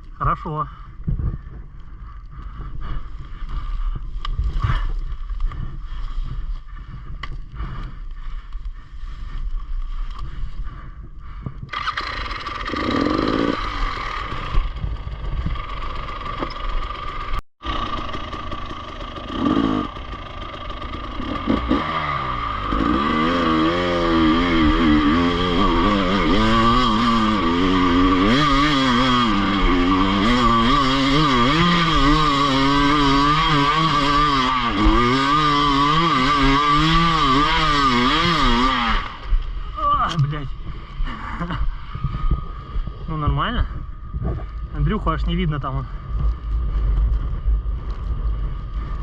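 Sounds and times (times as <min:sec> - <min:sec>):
dirt bike engine revving: 0:11.7 - 0:49.0.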